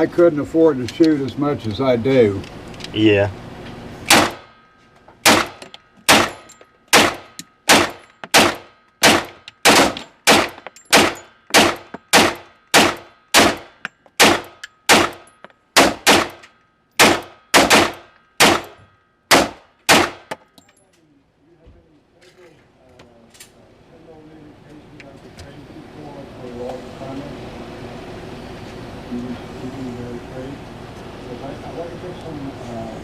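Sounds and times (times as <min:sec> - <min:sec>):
pistol shots with ringing echo: 0:04.1 - 0:04.6, 0:05.2 - 0:20.4.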